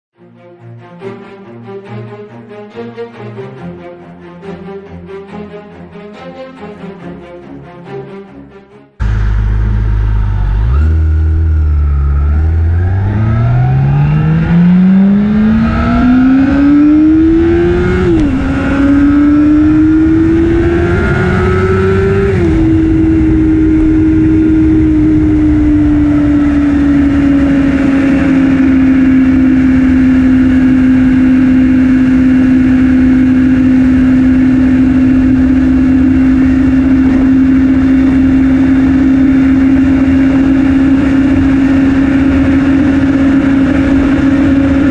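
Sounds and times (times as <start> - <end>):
motorcycle engine accelerating: 9.0 - 44.9.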